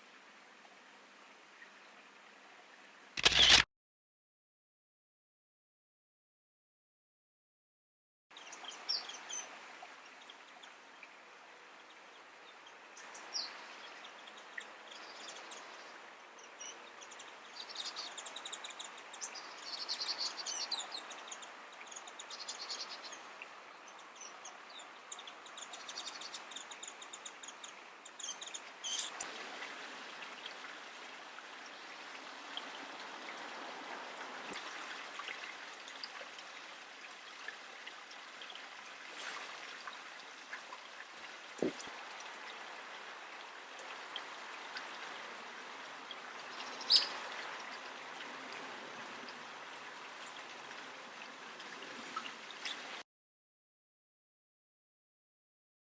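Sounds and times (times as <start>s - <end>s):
steady outdoor hiss: 0.0s - 3.6s, 8.3s - 53.0s
songbirds twittering: 11.8s - 29.3s, 46.0s - 48.0s.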